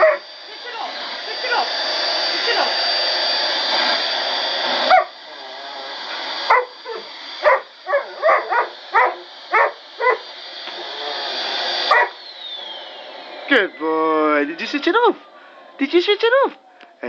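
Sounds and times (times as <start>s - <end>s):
dog whining: 0.0s - 0.2s, 4.8s - 5.2s, 6.5s - 10.2s, 11.9s - 12.2s
dog barking and yipping: 0.0s - 0.3s, 4.8s - 5.2s, 6.5s - 10.2s, 11.9s - 12.2s
vacuum cleaner running: 0.0s - 17.0s.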